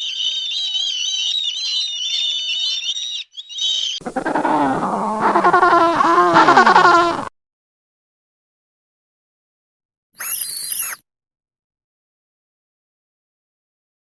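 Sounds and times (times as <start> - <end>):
high-pitched warbling animal calls: 10.2 - 11.0.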